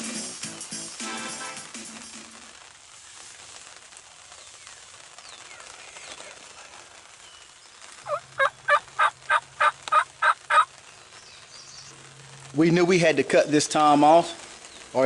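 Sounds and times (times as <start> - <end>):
wild turkey yelping: 8.1 - 10.7.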